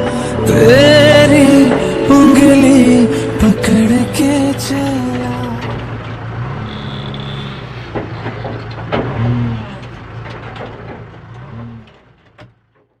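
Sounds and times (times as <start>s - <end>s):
diesel engine running: 0.0s - 13.0s
sharp metal knocks and clanks: 3.6s - 13.0s.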